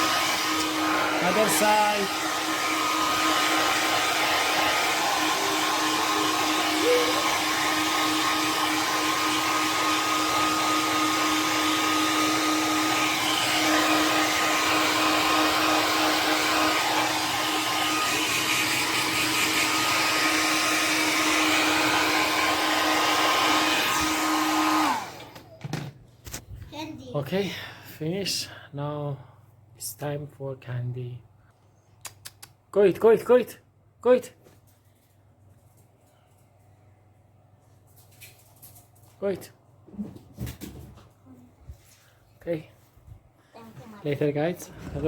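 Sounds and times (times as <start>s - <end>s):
hair dryer blowing: 0.0s - 25.9s, 44.0s - 45.0s.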